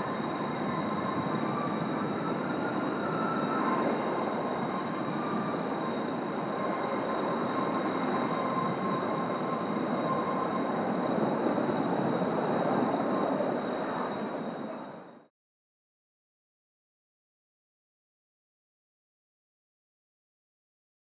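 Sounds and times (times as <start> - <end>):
jet engines running: 0.0 - 15.2.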